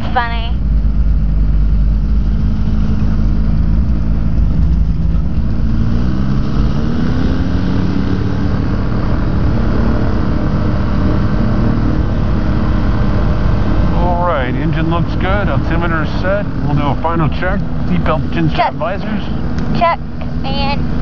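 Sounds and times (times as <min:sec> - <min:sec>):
aircraft engine running: 0:00.0 - 0:21.0
wind rumble on microphone: 0:00.6 - 0:13.0.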